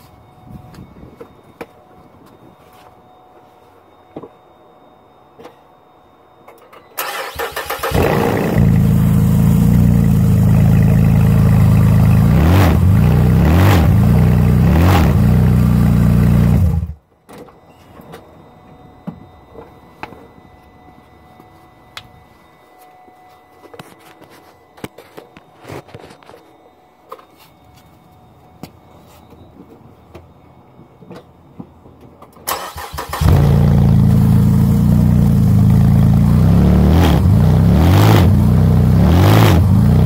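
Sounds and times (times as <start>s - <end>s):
car engine starting idling and revving: 7.0s - 17.0s, 32.5s - 40.0s.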